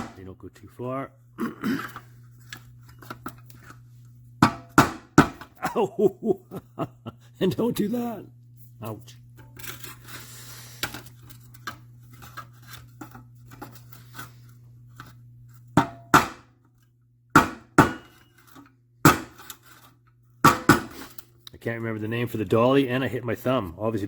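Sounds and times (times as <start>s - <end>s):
steady low hum: 0.0s - 24.0s
hammer tapping metal: 4.4s - 5.5s, 15.8s - 16.4s, 17.4s - 18.3s.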